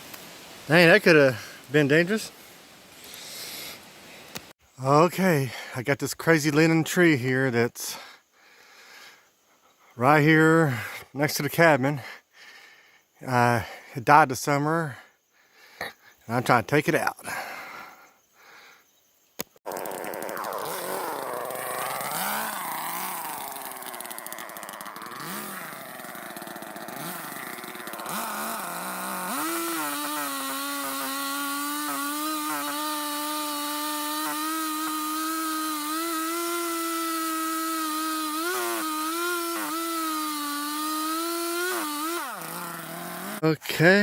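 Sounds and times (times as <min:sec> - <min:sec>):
chainsaw cutting wood: 0:19.6 - 0:43.5.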